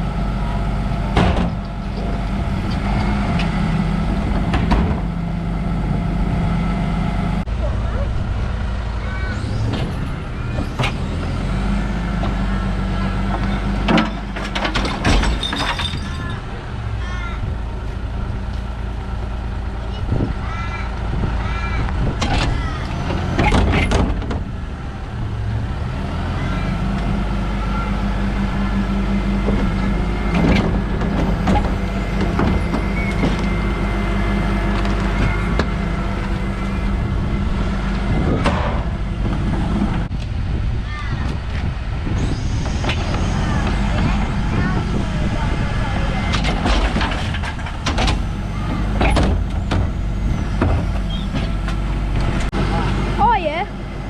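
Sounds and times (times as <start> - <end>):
diesel engine running: 0.0 - 54.0
metal knocks and clanks: 13.3 - 16.4, 38.3 - 40.1, 46.2 - 52.6
metal clanks: 13.4 - 16.5.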